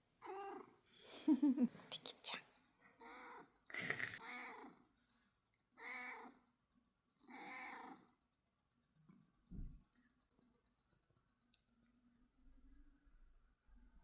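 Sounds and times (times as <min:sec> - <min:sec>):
cat meowing softly: 0:03.0 - 0:04.8, 0:05.8 - 0:06.4, 0:07.2 - 0:08.0
soft low thump: 0:09.5 - 0:09.8.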